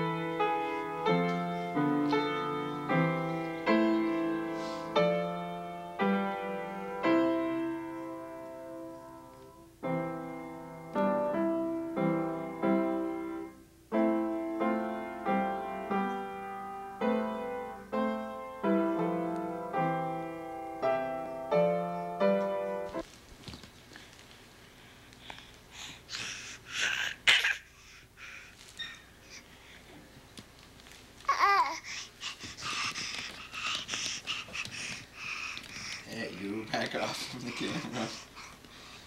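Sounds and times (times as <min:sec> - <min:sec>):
slow piano chords: 0:00.0 - 0:23.1.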